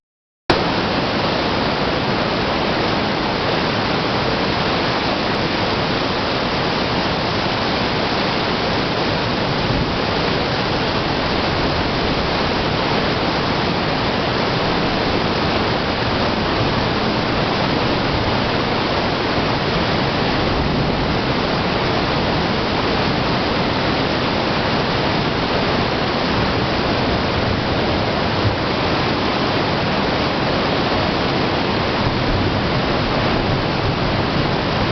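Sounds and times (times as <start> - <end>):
heavy rain falling: 0.5 - 34.9.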